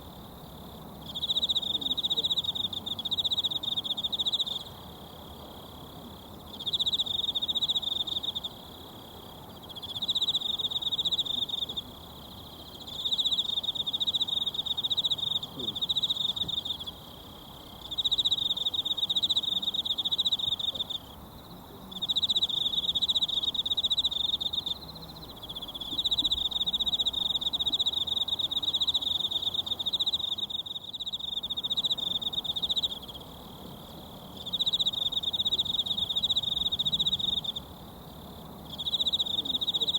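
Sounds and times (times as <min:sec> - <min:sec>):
insect trilling: 0:21.9 - 0:37.7, 0:38.6 - 0:39.9.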